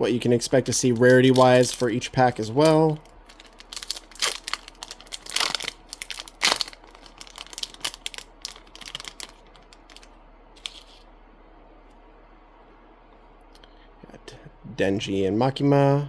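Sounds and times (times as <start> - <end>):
wrapper tearing and crinkling: 0.4 - 11.0.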